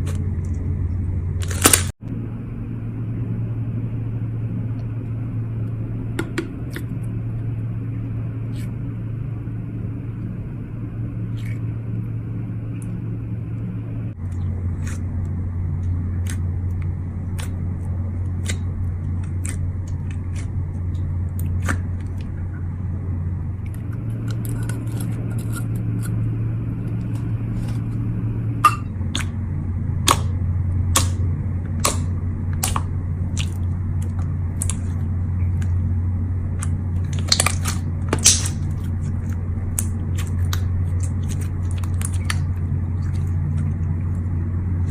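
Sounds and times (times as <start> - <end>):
steady low hum: 0.0 - 44.9
slime crackling and popping: 30.9 - 35.8, 36.5 - 44.2.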